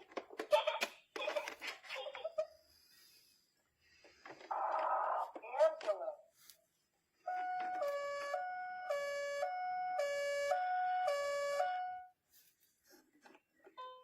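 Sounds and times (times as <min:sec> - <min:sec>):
toy two-tone siren: 0:07.3 - 0:12.1.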